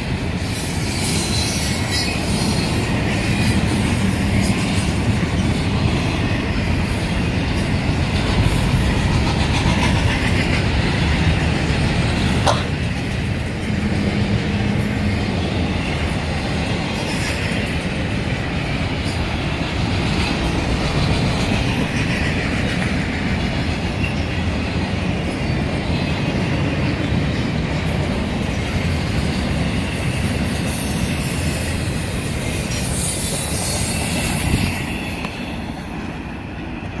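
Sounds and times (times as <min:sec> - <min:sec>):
train wheels squealing: 0:00.0 - 0:11.5, 0:13.3 - 0:19.6, 0:20.4 - 0:24.7, 0:27.8 - 0:37.0
train wheels clacking over rail joints: 0:00.0 - 0:37.0.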